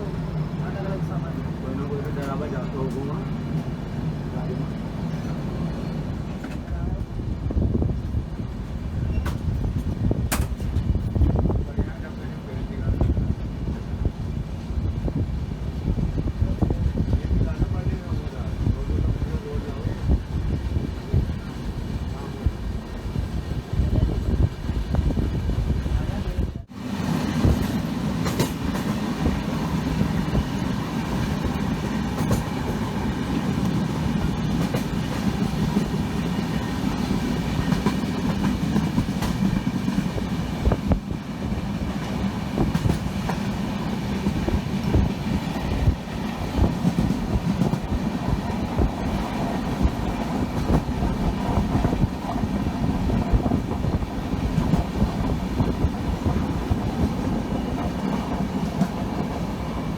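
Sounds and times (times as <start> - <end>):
train rumbling: 0.0 - 59.9
train wheels clickety-clack: 1.8 - 3.7, 6.2 - 7.1, 9.0 - 12.0, 27.2 - 59.9.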